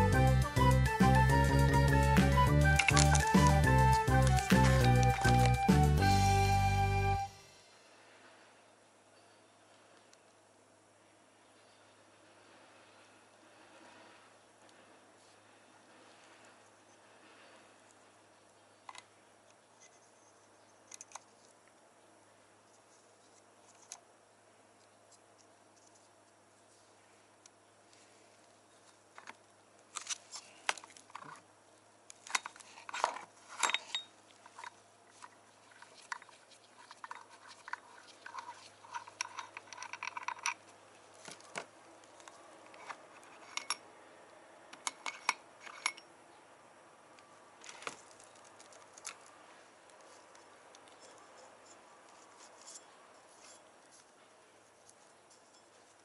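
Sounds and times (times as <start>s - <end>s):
metal parts and tools clinking: 2.6s - 5.7s, 32.2s - 41.6s, 42.2s - 43.8s, 44.7s - 46.1s, 50.9s - 53.7s.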